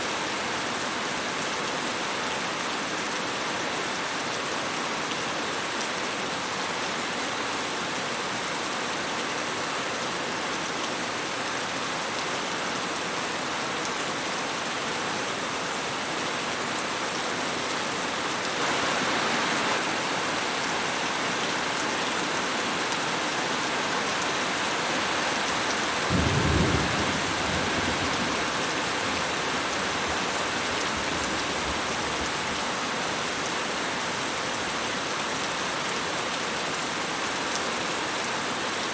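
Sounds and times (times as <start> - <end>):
heavy rainfall: 0.0 - 38.9
low roll of thunder: 26.1 - 28.5.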